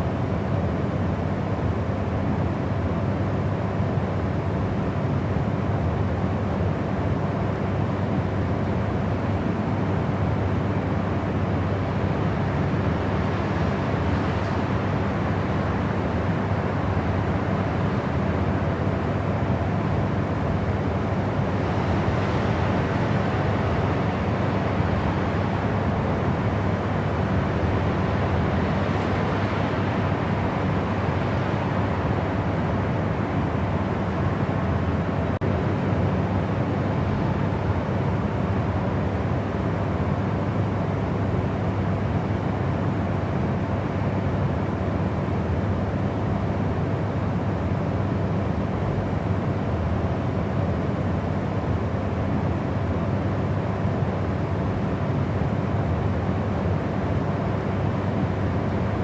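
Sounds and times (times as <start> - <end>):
low white noise rumble: 0.0 - 59.0.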